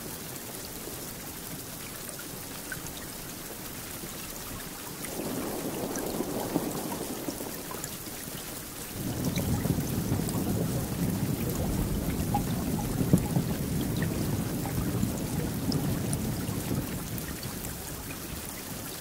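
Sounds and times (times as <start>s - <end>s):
steady rain: 0.0s - 19.0s
thunder rumbling: 5.0s - 18.6s.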